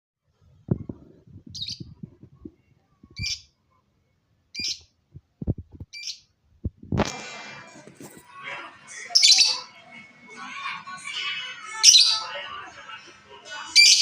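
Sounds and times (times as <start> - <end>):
lovebird chirping shrilly: 1.5 - 1.9, 3.2 - 3.5, 4.5 - 4.9, 5.9 - 6.2.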